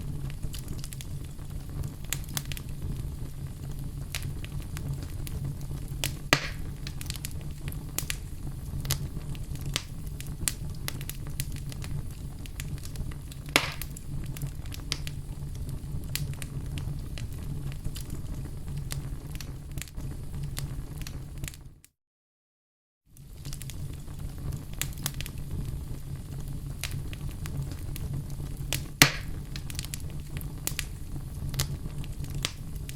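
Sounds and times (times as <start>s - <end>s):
loud fire pops: 0.0s - 21.6s, 23.2s - 32.9s
wood fire crackling: 0.0s - 21.8s, 23.1s - 32.9s.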